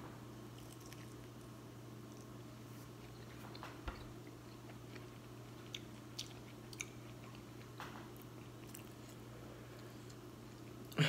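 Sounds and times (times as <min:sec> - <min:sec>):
steady low hum: 0:00.0 - 0:11.0
person chewing dumpling: 0:00.5 - 0:11.0.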